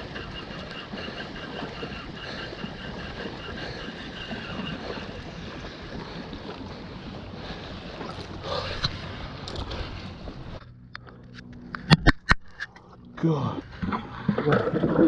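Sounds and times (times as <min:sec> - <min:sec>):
water sloshing around canoe: 0:00.0 - 0:10.6
wind on microphone: 0:00.0 - 0:10.6.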